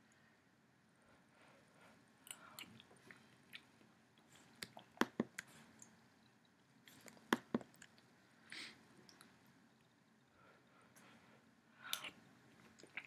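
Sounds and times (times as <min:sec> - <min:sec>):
wet chewing with mouth clicks: 0:02.3 - 0:08.1, 0:11.9 - 0:13.0.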